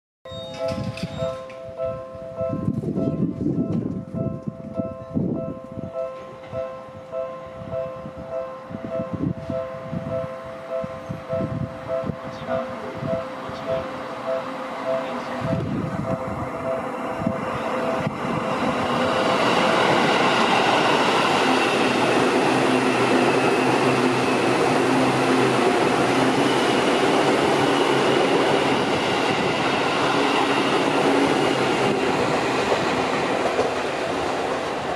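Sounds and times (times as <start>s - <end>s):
faint train whine: 0.3s - 34.9s
train wheels rushing on rail: 8.7s - 34.9s.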